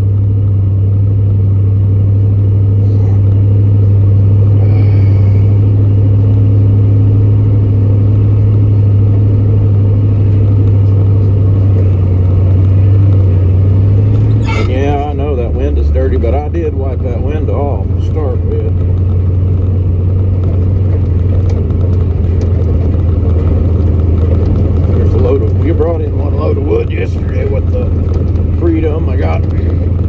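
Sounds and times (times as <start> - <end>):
truck engine droning: 0.0 - 30.0.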